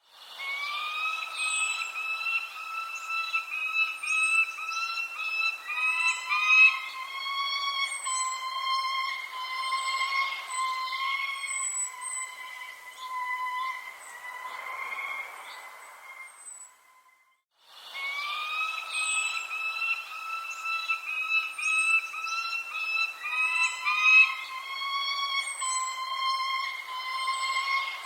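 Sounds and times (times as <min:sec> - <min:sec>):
birds chirping: 0:00.3 - 0:17.2, 0:17.8 - 0:28.0
whistle-like tone: 0:18.0 - 0:28.0.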